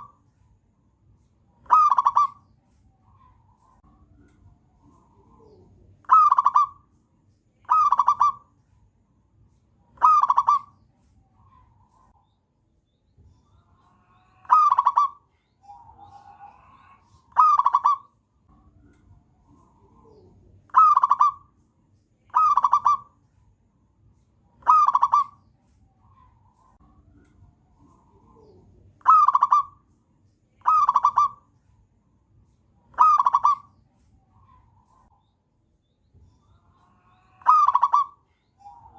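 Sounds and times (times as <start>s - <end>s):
dove cooing: 1.7s - 2.4s, 4.8s - 6.8s, 7.7s - 8.5s, 10.0s - 10.7s, 14.4s - 18.1s, 19.4s - 21.5s, 22.3s - 23.1s, 24.6s - 25.4s, 27.8s - 29.8s, 30.6s - 31.4s, 32.9s - 33.8s, 37.4s - 38.9s.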